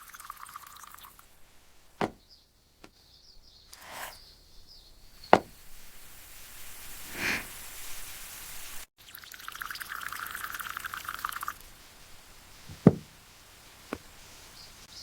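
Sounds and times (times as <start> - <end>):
sharp knocks: 2.0 - 2.2, 5.3 - 5.6, 12.7 - 13.2.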